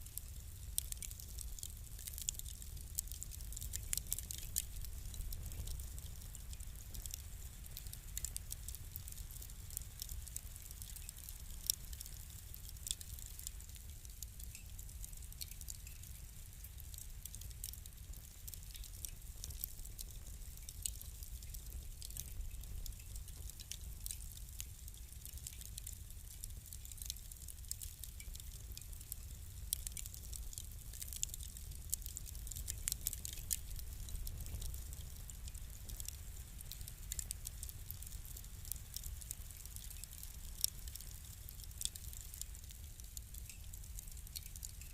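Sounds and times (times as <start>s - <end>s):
fire crackling and popping: 0.0s - 44.9s
low steady rumble: 28.4s - 39.6s.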